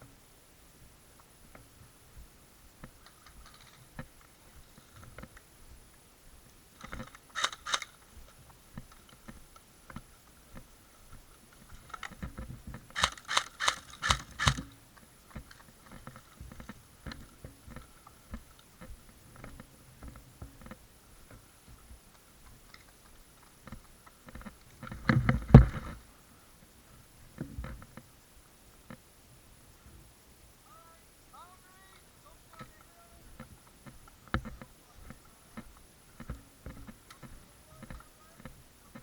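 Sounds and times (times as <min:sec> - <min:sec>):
rustling: 0:02.8 - 0:26.1
sharp clicks: 0:06.8 - 0:08.1, 0:12.9 - 0:14.8.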